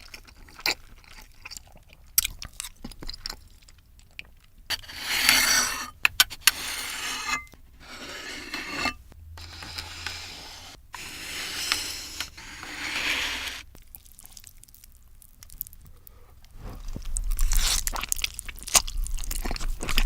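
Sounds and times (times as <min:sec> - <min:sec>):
noodle slurping and chewing: 0:00.0 - 0:20.0.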